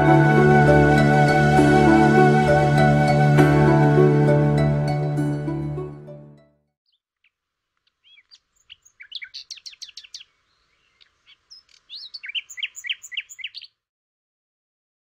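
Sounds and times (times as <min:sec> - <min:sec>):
small songbird chirping: 0:06.8 - 0:13.8.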